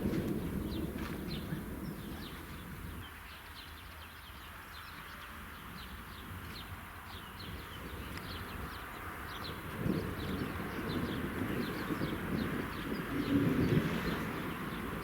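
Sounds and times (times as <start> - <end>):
distant thunder rumble: 0.0 - 3.0, 9.4 - 15.0.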